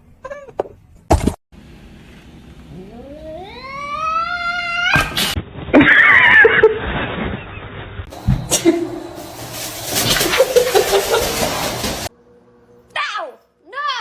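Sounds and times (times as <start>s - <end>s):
cat yowling: 2.8s - 5.2s.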